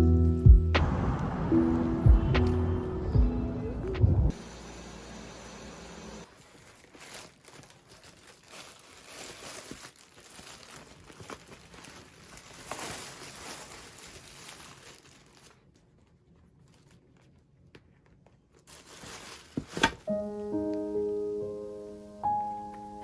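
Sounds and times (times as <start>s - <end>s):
packaging tearing: 6.2s - 17.3s, 18.6s - 20.1s
packaging crinkling: 6.2s - 20.2s.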